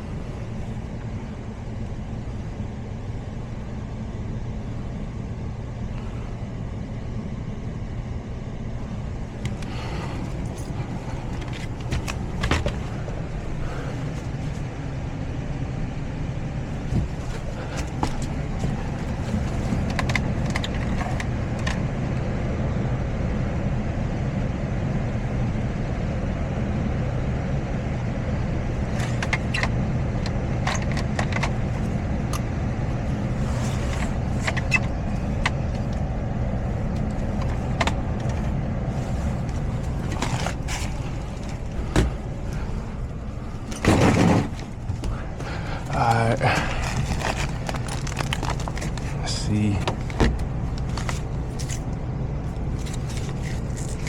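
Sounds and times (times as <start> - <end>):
blower humming: 8.3 - 23.0, 26.4 - 54.0
clicks and knocks from handling: 16.9 - 21.8.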